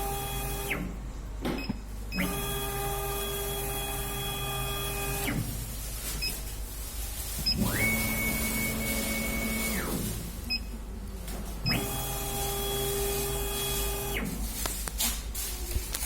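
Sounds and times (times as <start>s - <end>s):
laser cutter stepper motor whine: 2.2s - 5.4s, 7.5s - 10.0s.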